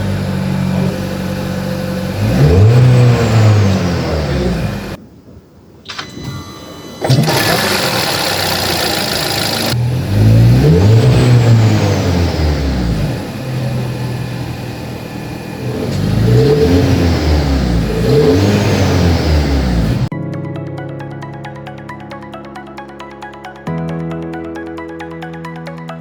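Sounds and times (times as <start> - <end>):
car engine revving: 0.0 - 5.0, 7.1 - 20.1.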